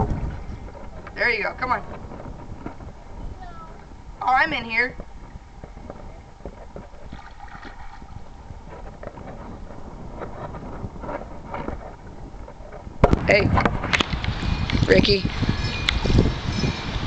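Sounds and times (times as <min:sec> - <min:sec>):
wind on microphone: 0:00.0 - 0:17.0
splashing in shallow water: 0:06.6 - 0:08.3.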